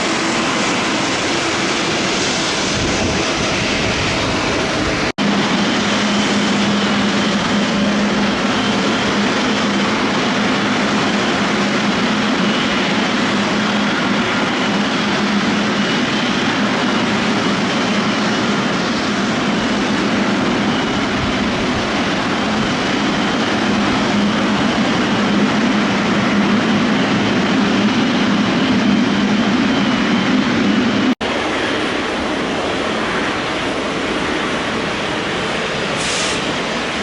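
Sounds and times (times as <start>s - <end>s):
jet engines at takeoff power: 0.0s - 37.0s.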